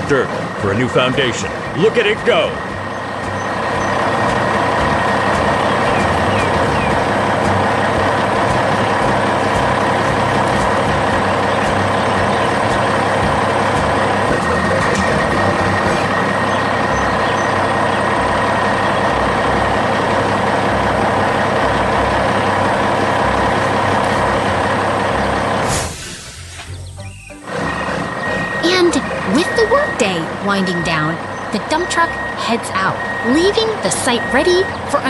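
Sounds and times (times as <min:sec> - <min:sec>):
dump truck engine rumble: 0:00.0 - 0:35.0
hiss: 0:25.6 - 0:26.8
thin whining tones: 0:26.6 - 0:35.0.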